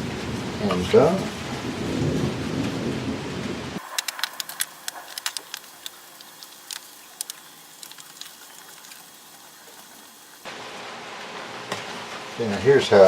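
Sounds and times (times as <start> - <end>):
sharp light clicks and taps: 3.9 - 9.0.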